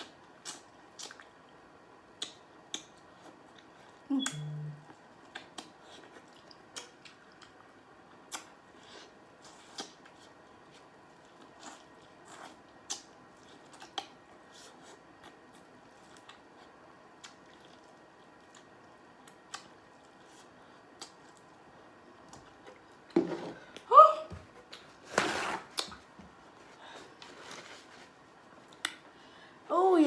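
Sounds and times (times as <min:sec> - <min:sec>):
person chewing corn on the cob: 0:00.0 - 0:04.0, 0:04.9 - 0:22.9
wet mouth clicks and smacks: 0:00.5 - 0:01.3.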